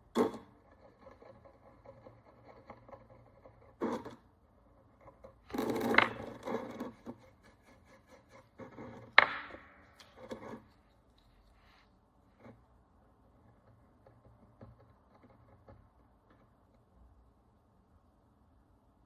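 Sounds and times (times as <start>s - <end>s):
scraping and rubbing: 0.6s - 4.2s, 4.8s - 12.8s.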